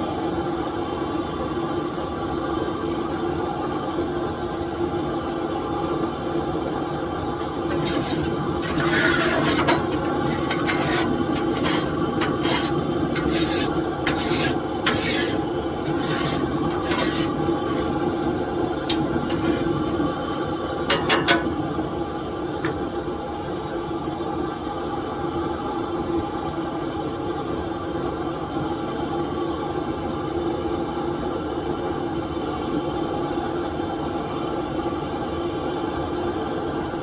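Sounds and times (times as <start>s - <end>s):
steady hum: 0.0s - 26.3s
kitchen utensils scraping: 7.7s - 18.0s, 18.9s - 20.0s.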